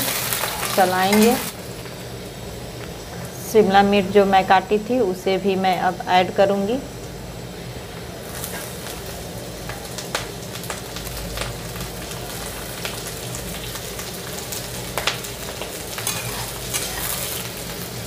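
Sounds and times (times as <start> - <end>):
vegetables sizzling in oil: 0.0 - 18.0
steel spatula scraping pan: 16.0 - 17.5.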